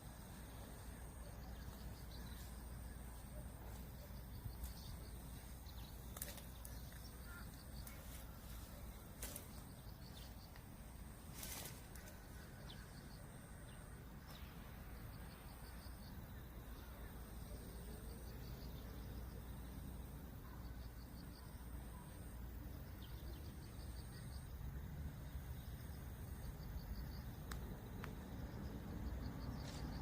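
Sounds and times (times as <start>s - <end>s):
faint bird calls: 1.2s - 10.5s.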